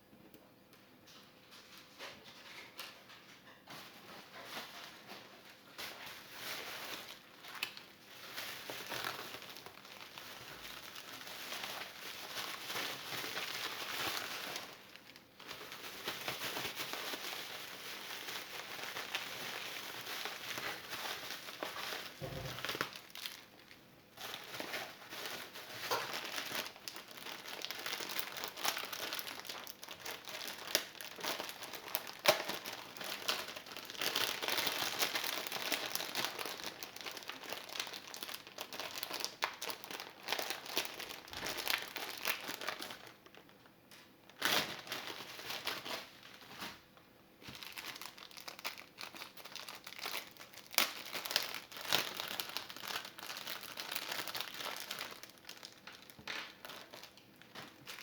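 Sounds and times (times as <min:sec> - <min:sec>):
crinkling and crackling: 0:00.2 - 0:58.0.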